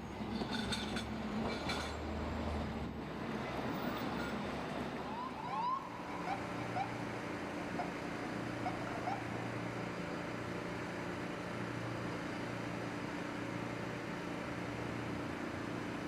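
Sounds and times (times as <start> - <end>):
busy street traffic: 0.0 - 16.0
fire engine siren whoops: 5.0 - 7.1.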